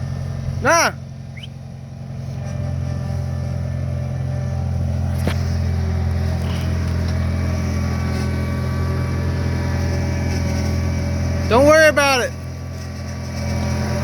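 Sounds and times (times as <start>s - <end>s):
skid steer engine droning: 0.0s - 14.0s.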